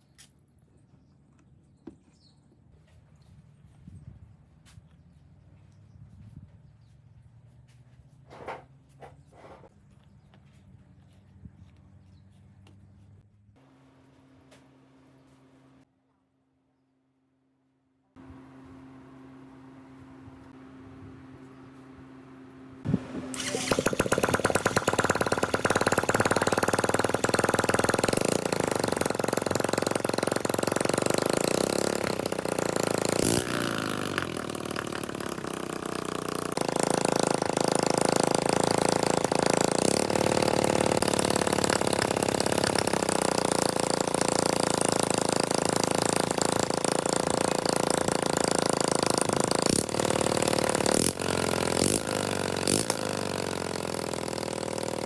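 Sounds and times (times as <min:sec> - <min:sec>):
motorcycle engine running: 0:22.8 - 0:55.0.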